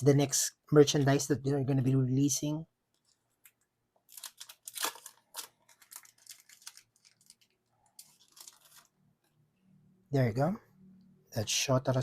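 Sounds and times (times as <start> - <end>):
plastic packaging crinkling: 2.9 - 9.0.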